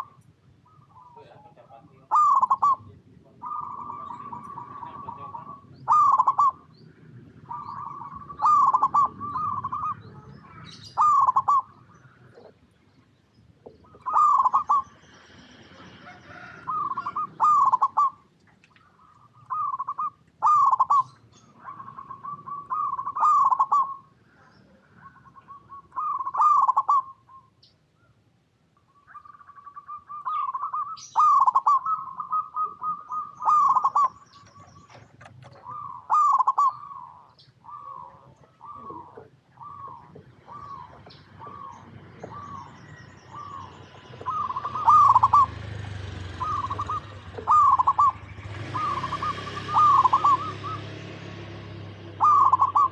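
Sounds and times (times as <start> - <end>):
dove cooing: 0.0 - 12.7, 13.6 - 27.5, 29.0 - 52.9.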